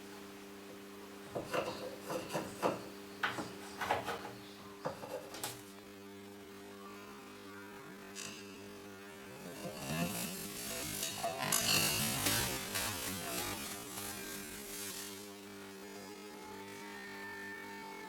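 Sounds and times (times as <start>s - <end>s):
electrical hum: 0.0s - 18.0s
scraping taps and rubs: 1.3s - 5.7s.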